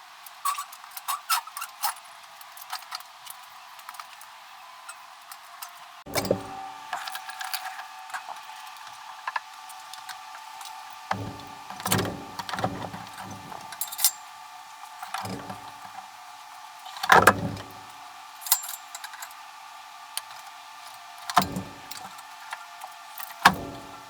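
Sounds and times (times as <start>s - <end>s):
metallic clanks and rattles: 6.1s - 6.6s, 11.1s - 14.2s, 15.1s - 16.0s, 17.1s - 17.9s, 21.4s - 22.2s, 23.4s - 24.0s.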